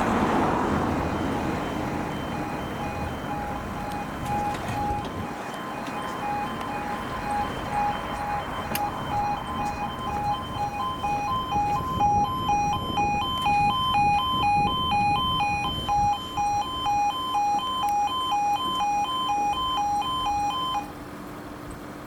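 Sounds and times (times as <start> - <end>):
two-tone warning alarm warble: 0.9 - 20.9.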